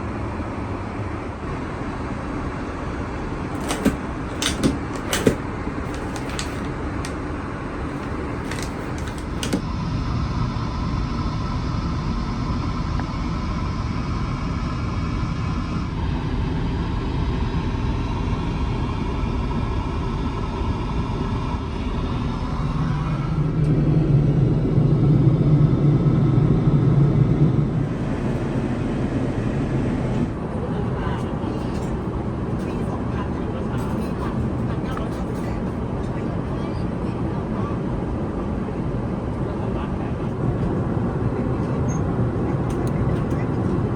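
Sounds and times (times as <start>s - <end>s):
airliner cabin engine rumble: 2.5s - 12.8s, 22.1s - 43.9s.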